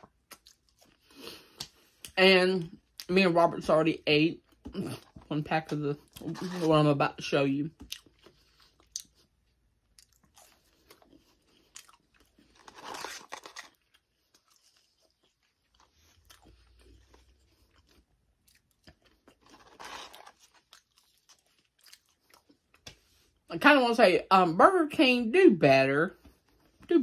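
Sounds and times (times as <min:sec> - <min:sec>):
person chewing fries: 0:00.0 - 0:03.1, 0:07.7 - 0:23.4
loud crunches: 0:11.8 - 0:13.8, 0:19.0 - 0:20.6.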